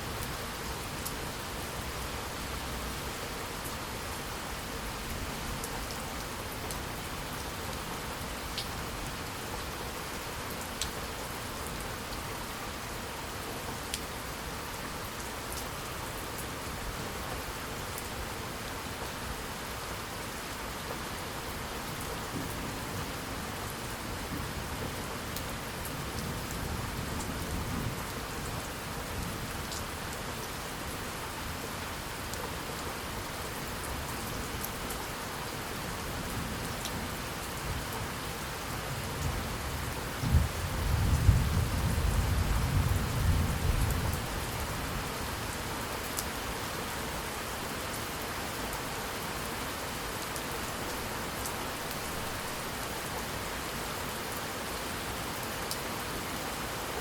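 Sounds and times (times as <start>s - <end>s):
steady rain: 0.0s - 57.0s
thunder crack and rumble: 40.2s - 44.2s.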